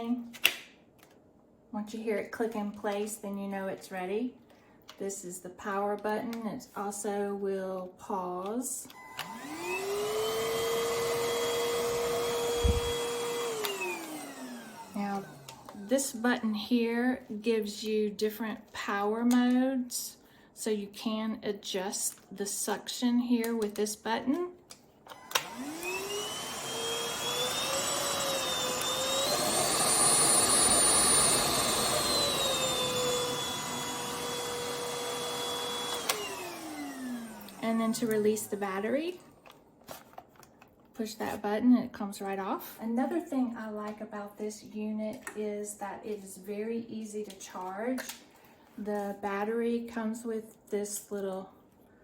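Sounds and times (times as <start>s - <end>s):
vacuum motor whine: 8.9s - 15.9s, 25.1s - 38.9s.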